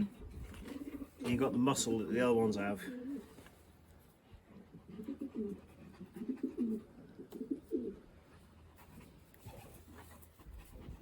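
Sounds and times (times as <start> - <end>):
pigeons cooing: 0.0 - 1.3, 2.8 - 3.4, 4.6 - 8.2.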